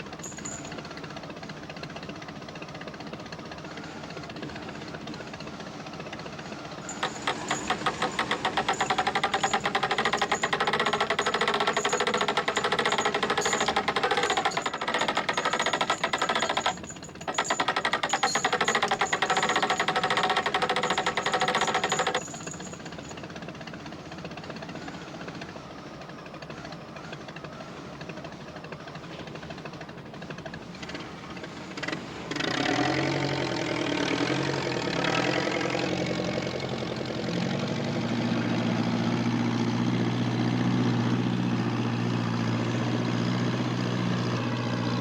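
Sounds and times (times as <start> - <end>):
machine rattling loudly: 0.0 - 24.5
engine running steadily: 0.0 - 45.0.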